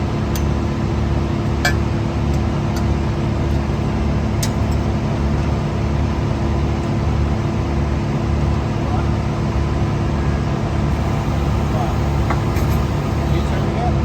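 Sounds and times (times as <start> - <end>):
diesel engine droning: 10.9 - 14.0.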